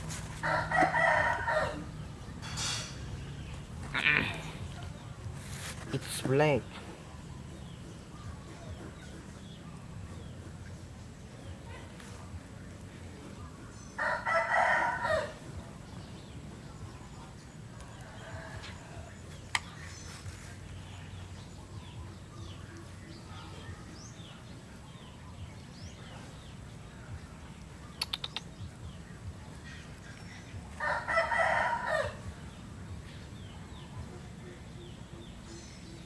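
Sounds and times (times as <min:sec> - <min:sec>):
small birds chirping: 0:00.0 - 0:36.0
rooster crowing: 0:00.4 - 0:01.9, 0:14.0 - 0:15.4, 0:30.8 - 0:32.3.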